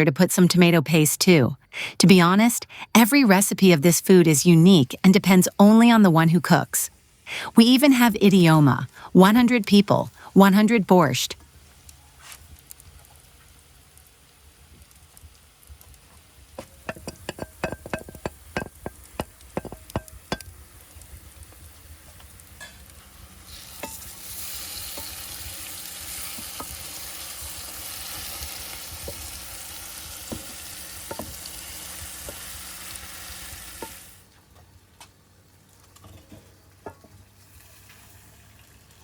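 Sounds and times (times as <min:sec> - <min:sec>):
vegetables sizzling in a pan: 0:11.4 - 0:34.4, 0:35.5 - 0:39.0.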